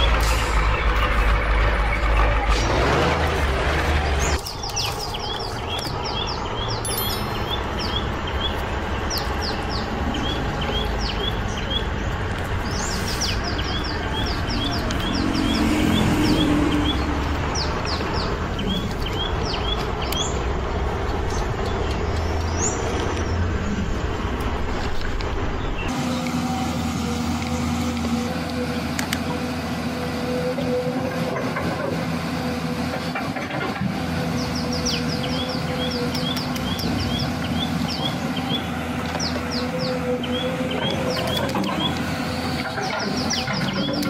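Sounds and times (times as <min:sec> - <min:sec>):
small birds chirping: 0:03.8 - 0:23.5, 0:34.2 - 0:44.0.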